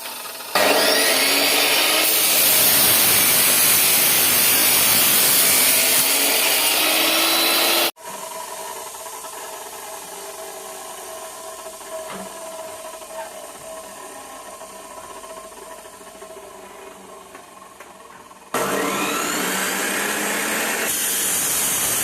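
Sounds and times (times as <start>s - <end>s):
chop saw grinding metal pipe: 0.5s - 8.5s, 18.6s - 22.0s.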